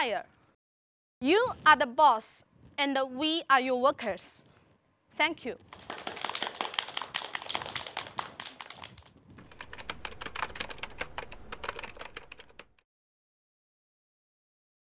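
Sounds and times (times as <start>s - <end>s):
audience clapping: 5.7s - 12.7s.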